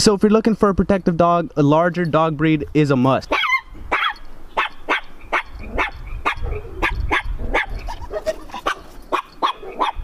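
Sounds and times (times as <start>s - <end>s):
dog barking: 3.3s - 10.0s.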